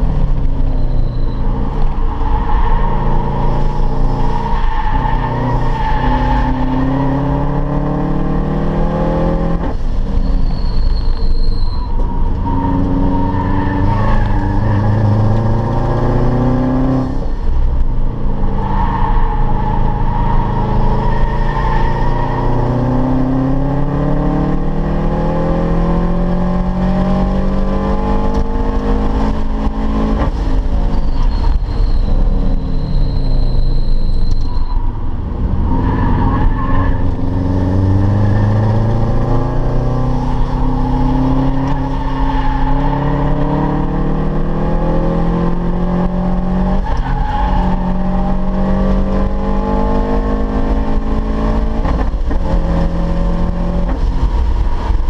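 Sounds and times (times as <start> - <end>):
car engine accelerating: 0.0 - 55.0
brief high squeal: 0.6 - 1.5, 10.1 - 12.1, 30.9 - 35.0.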